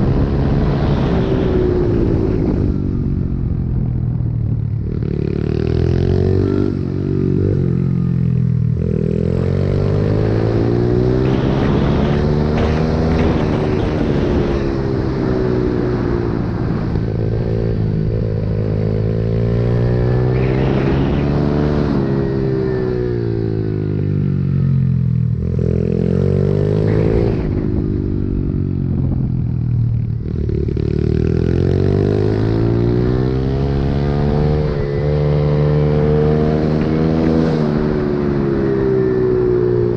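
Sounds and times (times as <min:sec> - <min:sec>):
motorbike engine revving: 0:08.7 - 0:24.8.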